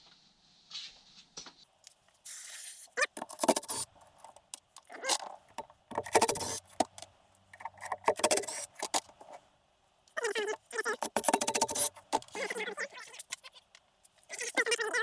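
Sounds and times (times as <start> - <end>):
metal parts and tools clinking: 3.0 - 9.3, 10.4 - 12.6.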